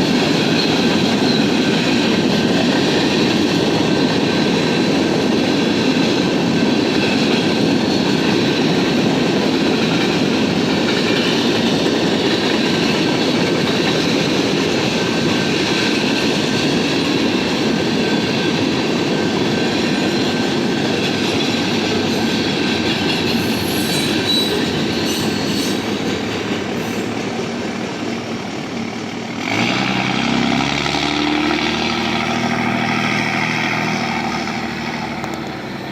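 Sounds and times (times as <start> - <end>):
train wheels rumbling on rails: 0.0 - 35.9
wheel squeal: 23.2 - 26.1
engine-like hum: 28.6 - 35.9.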